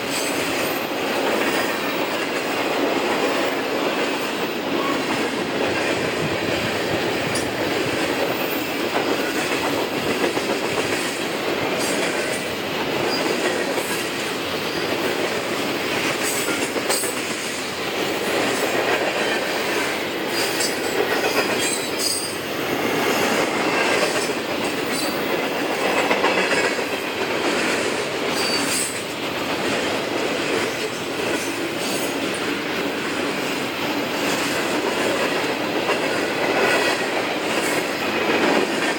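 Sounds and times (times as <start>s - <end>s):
train wheels squealing: 0.0s - 2.0s, 4.6s - 5.3s, 8.3s - 9.6s, 13.0s - 14.0s, 14.6s - 15.0s, 19.3s - 26.5s, 28.3s - 29.1s
freight train cars rolling: 0.0s - 38.9s.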